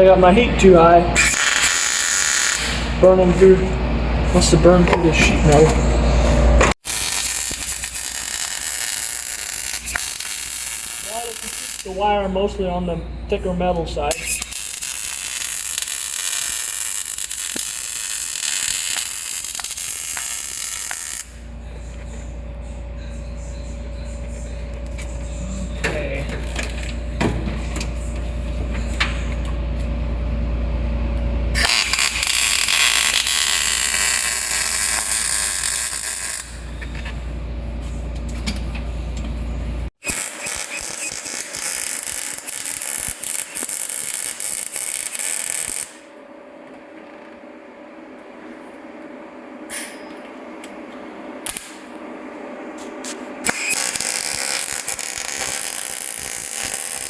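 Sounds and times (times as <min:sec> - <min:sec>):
welder arc crackling and hissing: 0:01.2 - 0:03.6, 0:06.8 - 0:12.5, 0:14.0 - 0:21.4, 0:31.6 - 0:36.5, 0:40.0 - 0:46.1, 0:52.8 - 0:57.0
steady low hum: 0:02.4 - 0:06.8, 0:07.4 - 0:39.9.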